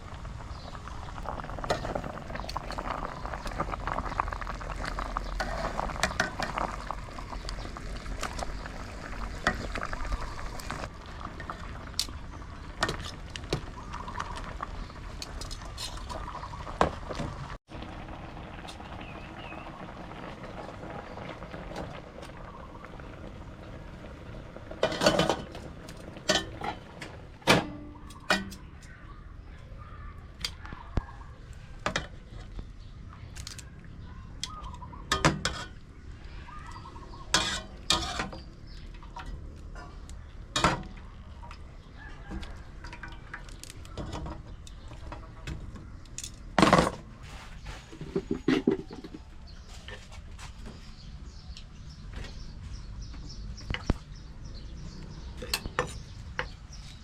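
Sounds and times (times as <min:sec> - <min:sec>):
dishes and utensils clinking: 0:26.3 - 0:28.7.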